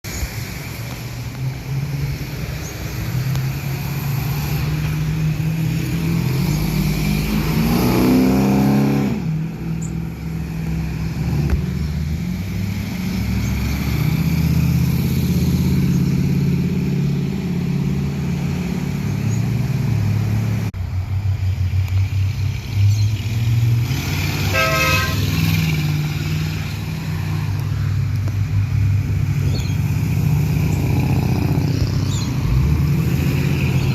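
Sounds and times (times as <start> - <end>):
car engines rumbling: 0.0 - 33.9
car engine revving: 1.5 - 33.9
car horn: 24.4 - 25.4.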